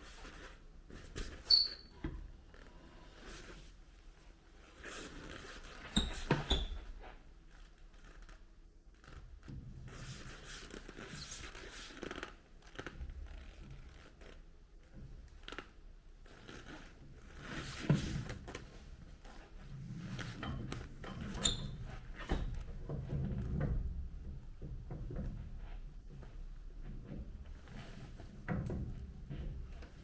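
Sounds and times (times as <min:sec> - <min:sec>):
rustling and scraping: 0:16.2 - 0:30.0.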